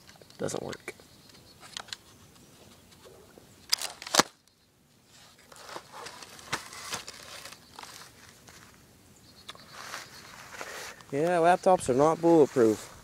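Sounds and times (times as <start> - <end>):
uneven rustling: 9.5 - 13.0.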